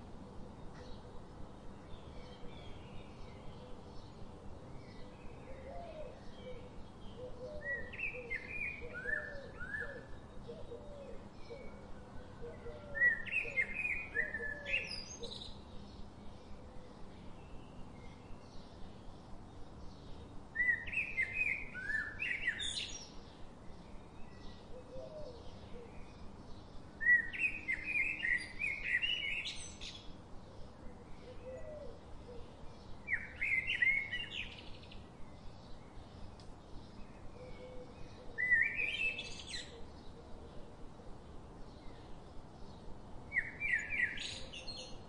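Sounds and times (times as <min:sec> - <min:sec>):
faint steady hiss: 0:00.0 - 0:45.0
songbird singing: 0:00.0 - 0:45.0.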